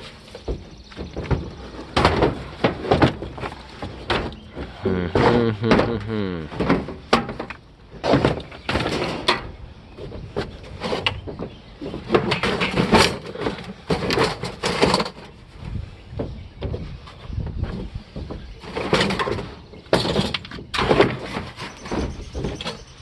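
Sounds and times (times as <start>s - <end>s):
hard objects knocking and scraping: 0.0s - 15.4s.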